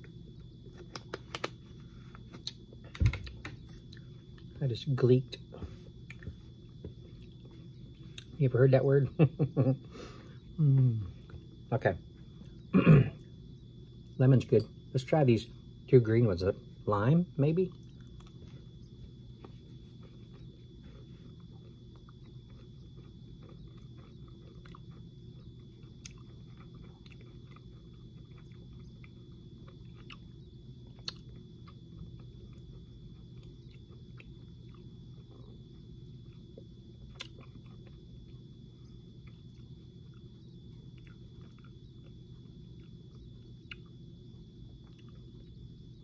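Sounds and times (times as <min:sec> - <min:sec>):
steady low hum: 0:00.0 - 0:46.0
chewing candies: 0:19.6 - 0:44.0.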